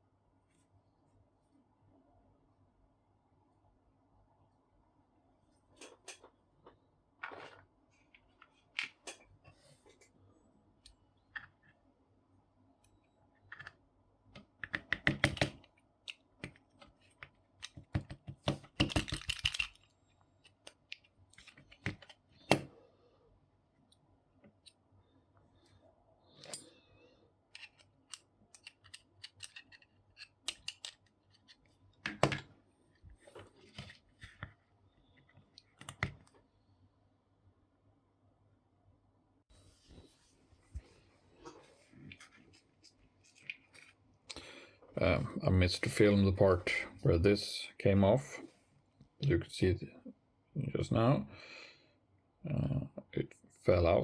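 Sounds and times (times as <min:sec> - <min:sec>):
small parts clicking and tapping: 0:13.4 - 0:22.7, 0:27.5 - 0:32.5.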